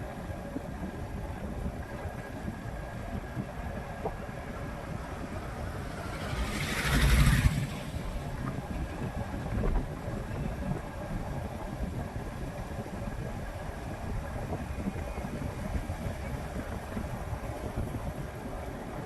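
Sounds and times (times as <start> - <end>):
street traffic rumble: 0.0 - 19.0
vehicle passing close by: 4.8 - 9.2.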